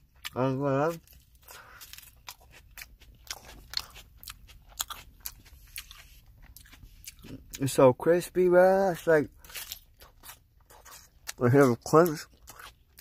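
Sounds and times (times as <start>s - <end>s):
lettuce crunching while chewed: 0.0s - 7.9s, 8.7s - 13.0s.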